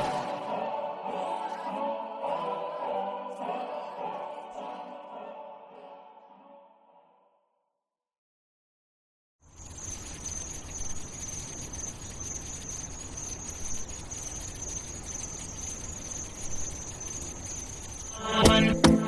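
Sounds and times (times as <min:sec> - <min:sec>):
high-pitched insect chirring: 0:09.5 - 0:19.0.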